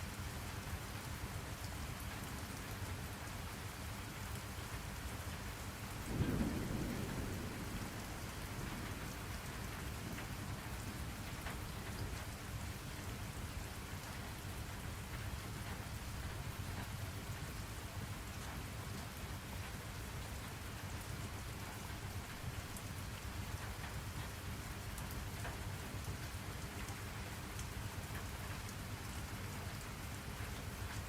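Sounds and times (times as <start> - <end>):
steady rainfall: 0.0 - 31.0
low roll of thunder: 6.0 - 12.6.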